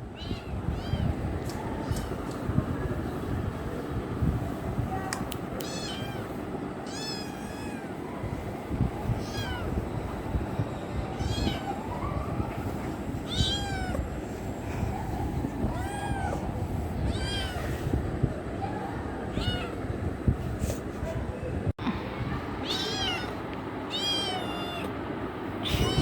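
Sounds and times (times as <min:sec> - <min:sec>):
steady low rumble: 0:00.0 - 0:26.0
kitten meowing: 0:05.6 - 0:06.2, 0:06.9 - 0:07.8, 0:13.3 - 0:14.0, 0:23.9 - 0:24.9, 0:25.6 - 0:26.0.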